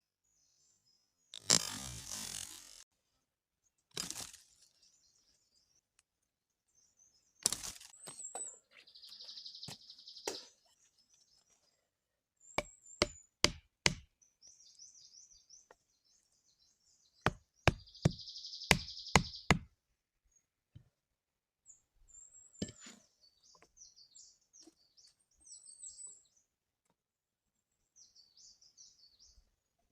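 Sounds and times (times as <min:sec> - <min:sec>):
sharp knocking strikes: 0:12.6 - 0:14.1, 0:17.3 - 0:19.7
high bird chirps: 0:14.4 - 0:19.6.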